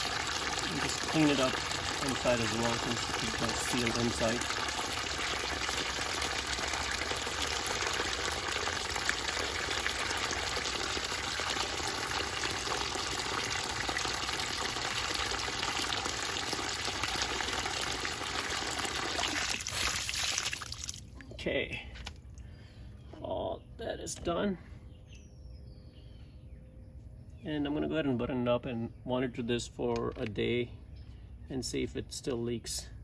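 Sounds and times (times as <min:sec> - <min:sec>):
water rushing from fitting: 0:00.0 - 0:21.1.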